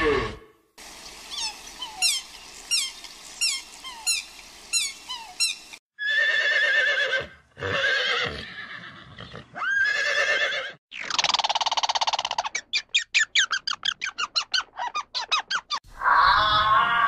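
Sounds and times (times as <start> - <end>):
horse whinnying: 6.0 - 10.8.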